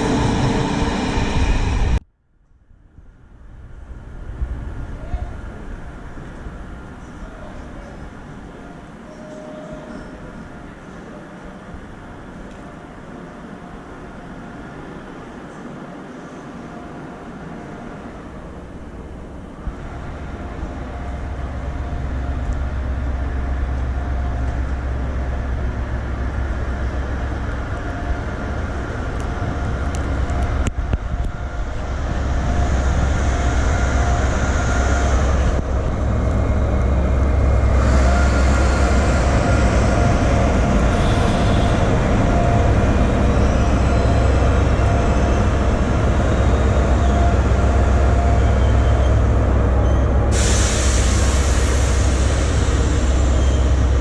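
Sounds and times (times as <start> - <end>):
train rumble: 0.0 - 54.0
high hiss: 50.3 - 54.0.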